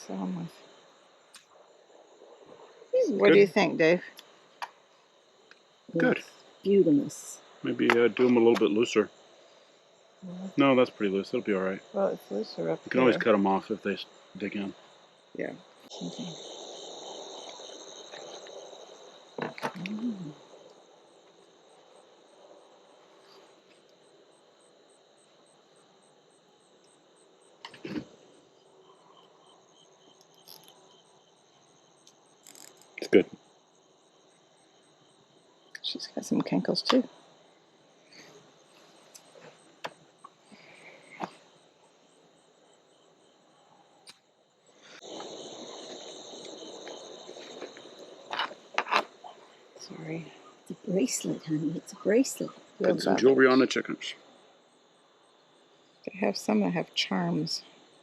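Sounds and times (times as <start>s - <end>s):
crickets chirping: 0.0s - 58.0s
sharp clicks: 7.8s - 8.8s.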